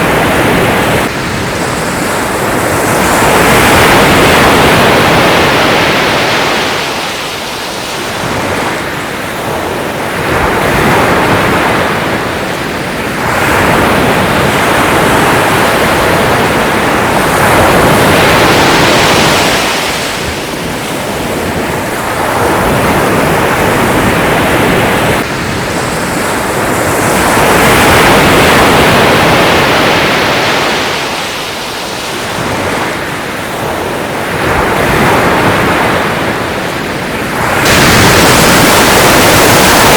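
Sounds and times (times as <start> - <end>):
sea waves washing: 0.0 - 39.9.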